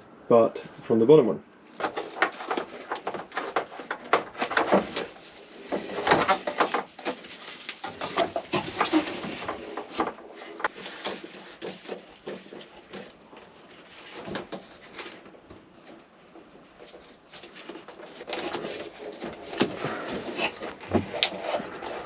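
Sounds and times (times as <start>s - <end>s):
rubber squeaking on plastic: 1.7s - 22.0s.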